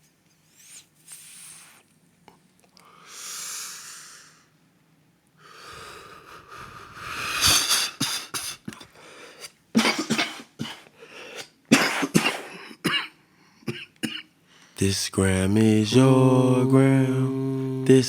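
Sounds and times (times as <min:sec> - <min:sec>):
person breathing out with a hiss: 0:00.6 - 0:01.8, 0:02.8 - 0:04.5, 0:05.4 - 0:09.5
rising rasping breath: 0:05.4 - 0:08.0
person coughing: 0:09.8 - 0:14.3.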